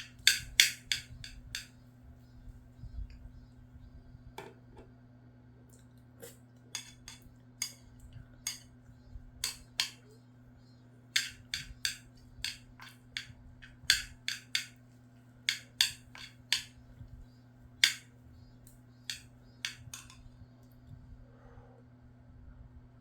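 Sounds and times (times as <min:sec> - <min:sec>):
utensils clicking against a dish: 0:00.0 - 0:01.7, 0:06.2 - 0:08.8, 0:09.4 - 0:10.2, 0:11.1 - 0:14.8, 0:15.4 - 0:17.1, 0:17.8 - 0:20.3.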